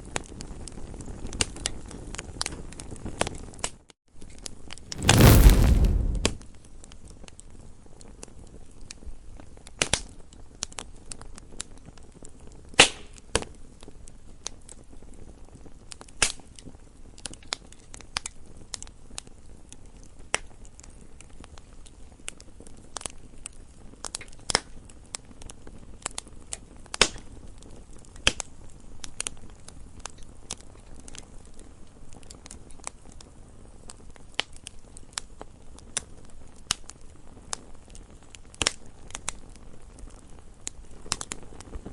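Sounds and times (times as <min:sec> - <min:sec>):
campfire crackling: 0:04.9 - 0:06.4.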